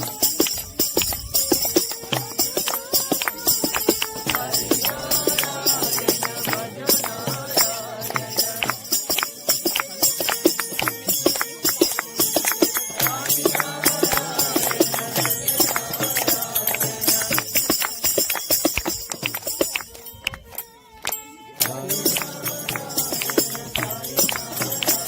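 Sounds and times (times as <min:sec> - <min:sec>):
jingling percussion: 0:00.0 - 0:25.0
rhythmic hand-clapping: 0:00.0 - 0:25.0
group singing: 0:02.2 - 0:09.5, 0:12.7 - 0:18.0, 0:21.6 - 0:25.0.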